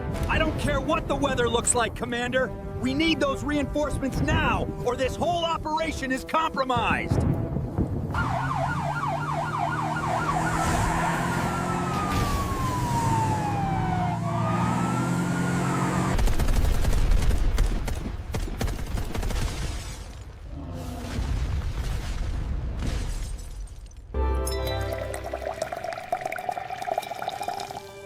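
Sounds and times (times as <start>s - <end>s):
police siren: 8.2s - 16.2s
loud rumbling with crackles: 16.0s - 23.2s.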